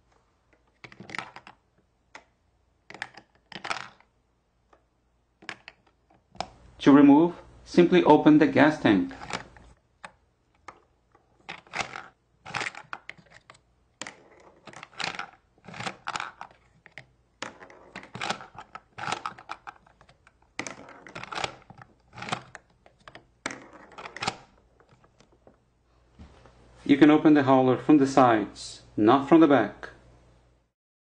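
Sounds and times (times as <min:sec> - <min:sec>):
plastic toy clicking and rattling: 0:02.9 - 0:04.1, 0:09.2 - 0:25.4.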